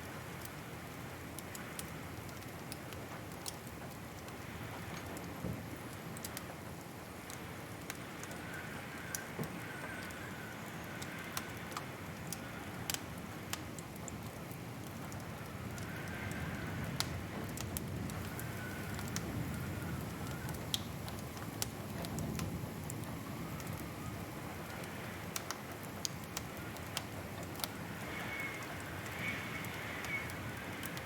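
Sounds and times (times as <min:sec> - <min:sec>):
wood fire crackling: 0:00.0 - 0:31.0
faint wavering whistle: 0:27.7 - 0:30.4.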